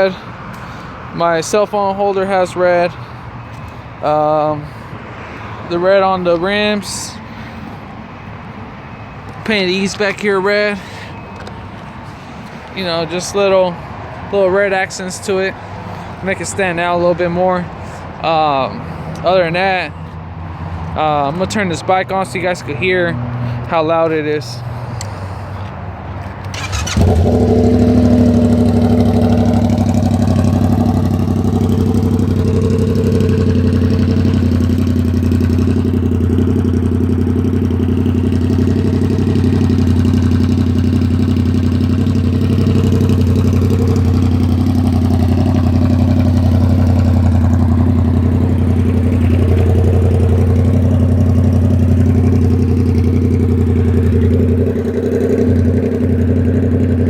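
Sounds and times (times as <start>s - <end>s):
motorcycle engine starting and idling: 26.4s - 57.0s.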